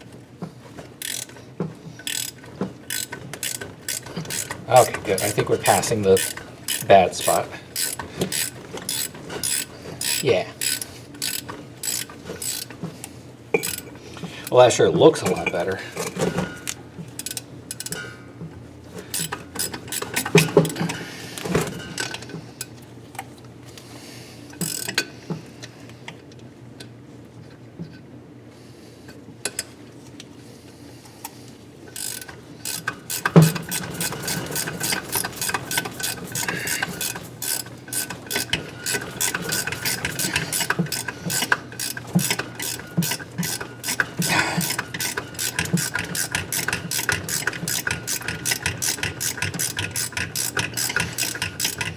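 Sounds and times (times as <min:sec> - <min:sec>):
hand ratchet clicking: 0:01.0 - 0:01.4, 0:02.0 - 0:12.8, 0:13.6 - 0:14.0, 0:16.6 - 0:18.0, 0:19.1 - 0:21.0, 0:24.6 - 0:25.0, 0:32.0 - 0:51.9
tool knocks and clicks: 0:32.8 - 0:37.2.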